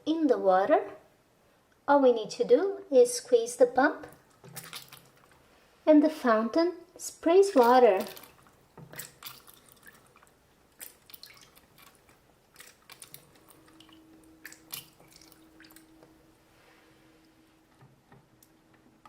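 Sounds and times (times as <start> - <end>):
faint steady hum: 0.0 - 19.0
water dripping and splashing: 4.0 - 5.4, 7.4 - 16.2.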